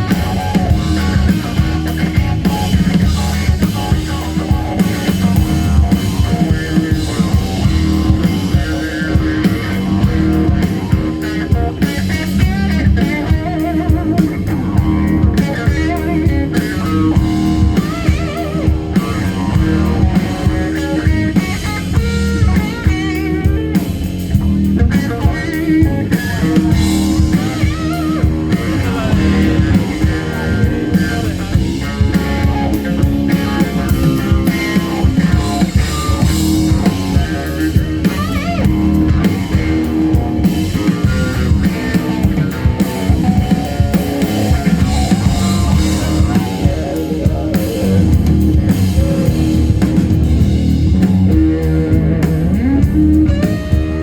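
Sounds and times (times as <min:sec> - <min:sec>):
drum kit: 0:00.0 - 0:54.0
electric guitar playing: 0:00.0 - 0:54.0.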